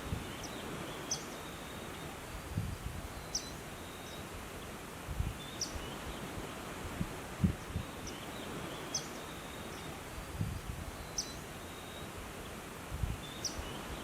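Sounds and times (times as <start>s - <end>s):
steady background hiss: 0.0s - 14.0s
bird chirping: 0.2s - 2.2s, 3.2s - 6.3s, 7.6s - 10.1s, 11.0s - 12.6s, 13.2s - 14.0s.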